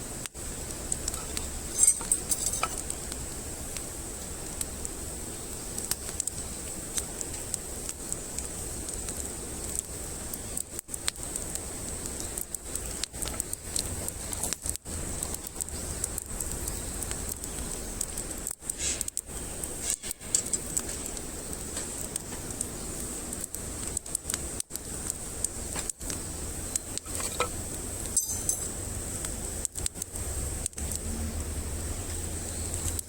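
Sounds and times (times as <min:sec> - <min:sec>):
campfire crackling: 0:00.0 - 0:33.0
fire hissing: 0:00.0 - 0:33.0.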